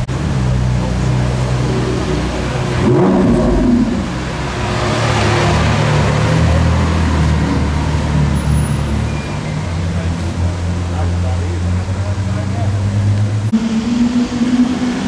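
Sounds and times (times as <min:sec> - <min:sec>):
sports car engine driving past: 0:00.8 - 0:10.3.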